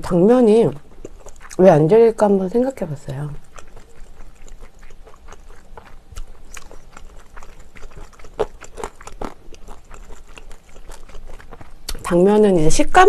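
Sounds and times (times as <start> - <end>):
person chewing: 0.6 - 12.2
wet mouth clicks and smacks: 3.4 - 12.0.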